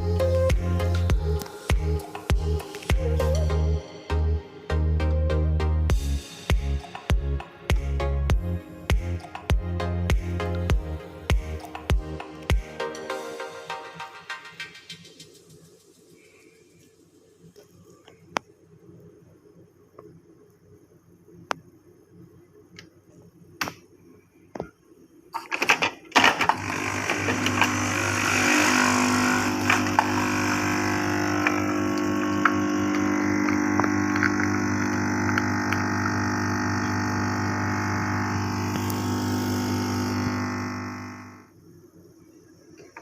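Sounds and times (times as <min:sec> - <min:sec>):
coffee machine motor hum: 0:26.2 - 0:41.5.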